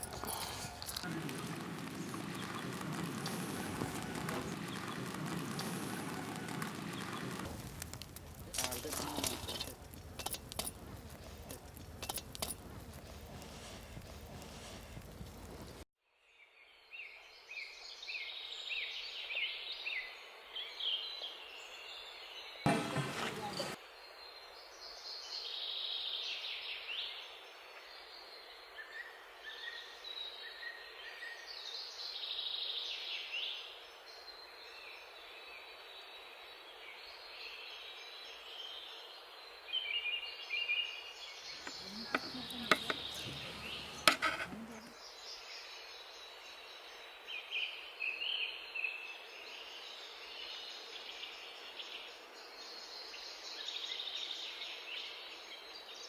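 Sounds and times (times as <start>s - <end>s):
birds chirping: 0.0s - 15.8s, 41.2s - 45.5s
sharp knocks and clatters: 22.7s - 23.8s, 41.7s - 44.9s.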